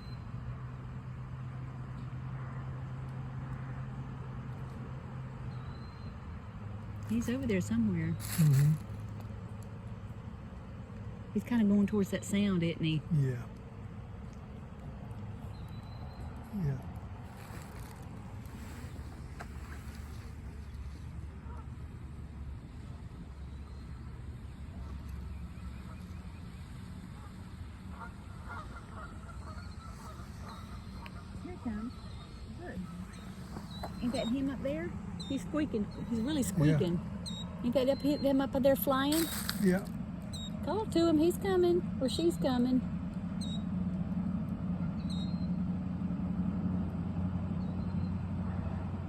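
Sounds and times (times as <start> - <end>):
low engine hum: 0.0 - 49.0
steady low rumble: 6.4 - 49.0
killdeer calling: 23.4 - 39.5, 40.2 - 42.6, 43.3 - 43.8, 44.8 - 45.8.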